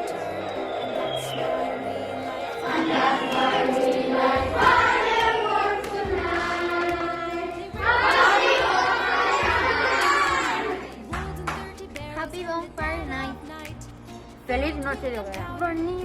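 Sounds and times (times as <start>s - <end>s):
children's choir singing: 0.0s - 11.7s
backing track: 0.0s - 16.0s.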